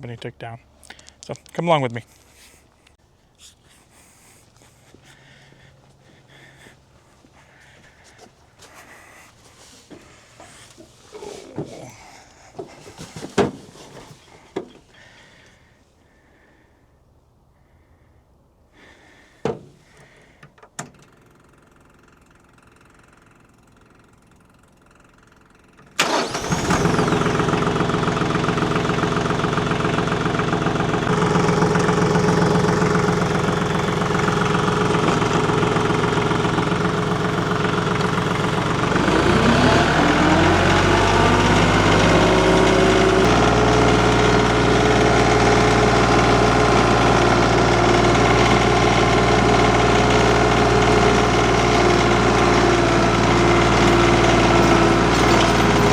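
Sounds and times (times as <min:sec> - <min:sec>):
tractor engine starting and running: 0:09.5 - 0:15.6, 0:19.4 - 0:55.9.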